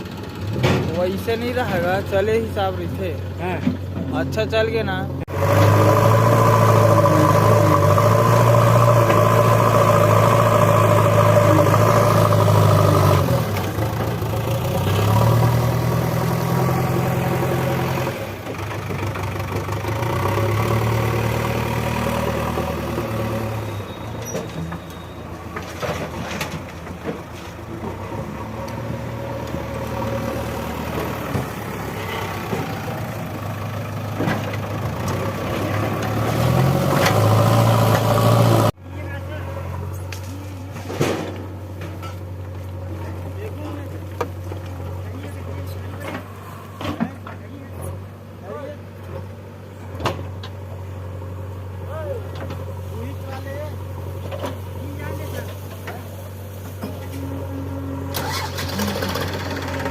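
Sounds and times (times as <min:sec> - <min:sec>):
heavy diesel engine revving: 0:05.1 - 0:24.9, 0:27.5 - 0:38.8, 0:56.8 - 0:59.9.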